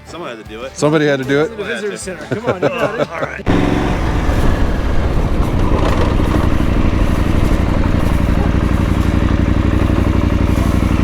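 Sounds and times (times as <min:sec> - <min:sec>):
motorcycle engine running: 0:03.5 - 0:11.0.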